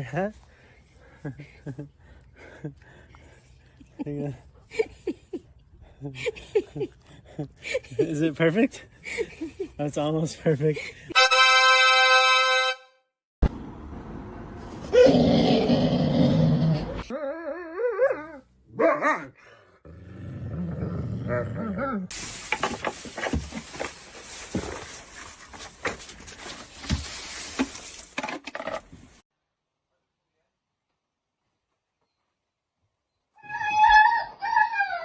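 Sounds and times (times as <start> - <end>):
dog growling and barking: 17.9 - 22.1
dog whining cry: 33.4 - 35.0.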